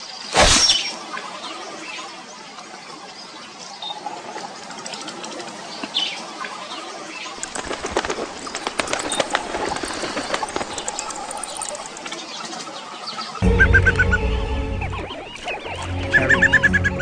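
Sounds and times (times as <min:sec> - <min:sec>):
flock of birds flapping wings: 0:07.4 - 0:12.7.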